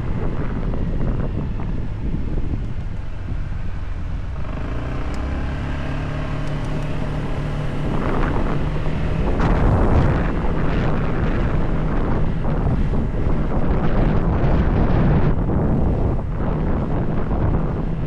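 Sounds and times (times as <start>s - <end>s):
motorcycle engine running: 0.0s - 18.0s
wind rushing over microphone: 0.0s - 18.0s.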